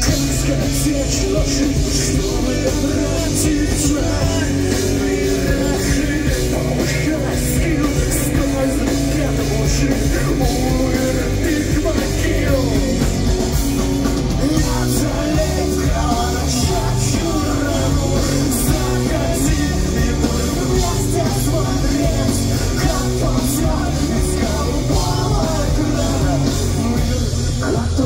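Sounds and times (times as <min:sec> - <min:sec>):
drums with cymbal hits: 0:00.0 - 0:28.0
electric guitars: 0:00.0 - 0:28.0
person singing: 0:00.0 - 0:28.0.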